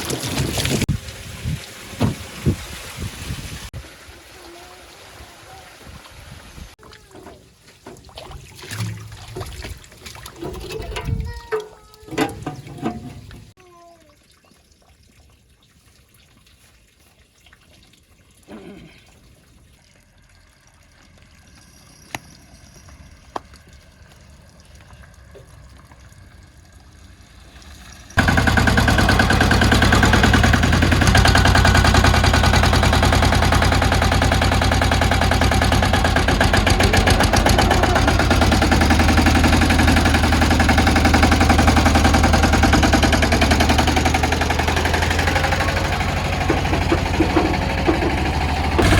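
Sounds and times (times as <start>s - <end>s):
small engine running with knocking beat: 28.2s - 48.9s.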